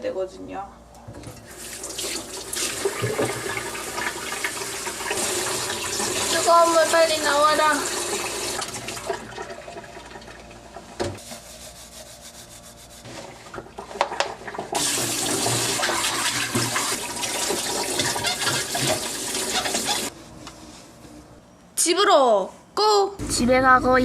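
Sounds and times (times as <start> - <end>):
tap running into sink: 2.8 - 3.6.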